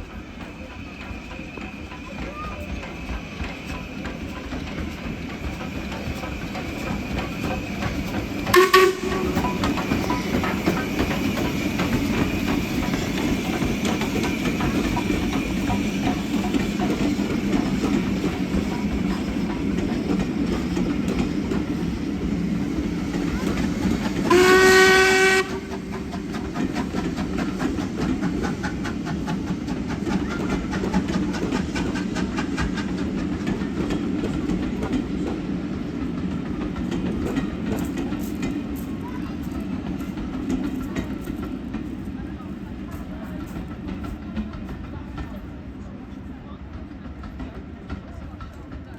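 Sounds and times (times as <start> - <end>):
train rumbling on rails: 0.0 - 48.9
train whistle blast: 8.5 - 9.6, 24.3 - 25.8.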